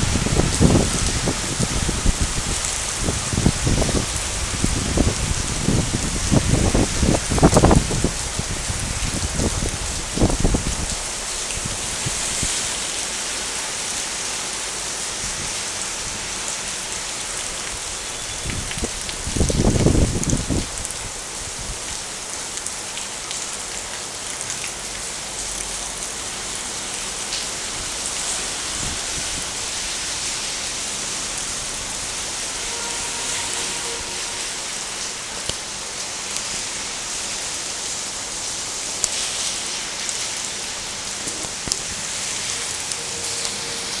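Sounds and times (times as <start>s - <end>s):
steady rain hiss: 0.0s - 44.0s
raindrops tapping: 39.0s - 44.0s.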